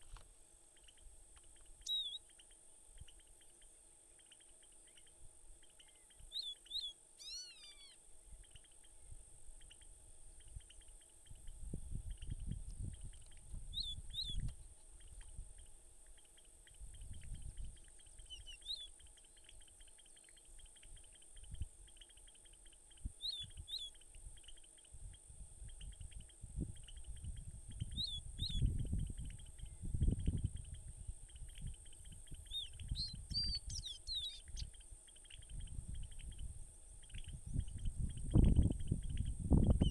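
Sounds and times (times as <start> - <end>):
bird singing high notes: 7.2 - 8.0.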